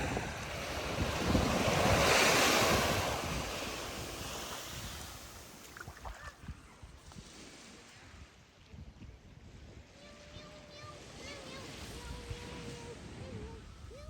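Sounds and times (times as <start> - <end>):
wave breaking on beach: 0.0 - 6.0
wind buffeting microphone: 0.0 - 14.0.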